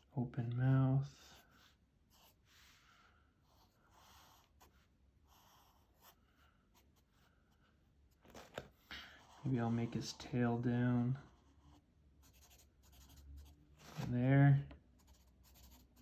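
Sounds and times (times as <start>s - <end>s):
pen scratching on paper: 1.4s - 2.7s, 3.4s - 7.2s, 11.2s - 14.3s, 15.0s - 16.0s.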